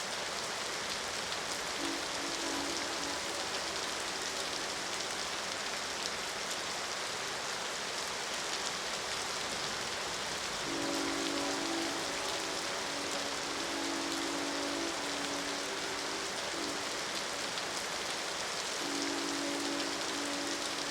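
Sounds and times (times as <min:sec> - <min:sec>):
steady rain falling: 0:00.0 - 0:20.9
train horn chord: 0:01.7 - 0:05.2, 0:10.6 - 0:20.9.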